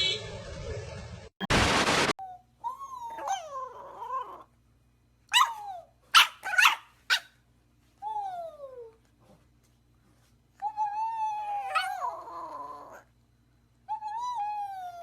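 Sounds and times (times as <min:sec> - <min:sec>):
dog whining and yipping: 0:02.6 - 0:04.4, 0:05.3 - 0:07.3, 0:10.6 - 0:13.0, 0:13.9 - 0:15.0.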